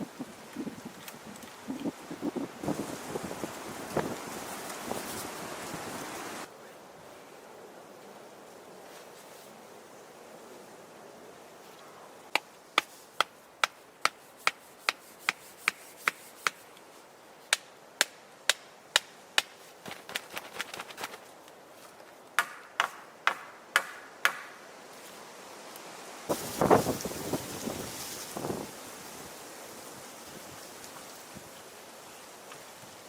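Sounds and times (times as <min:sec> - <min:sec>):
tool striking wood: 0:22.4 - 0:24.5.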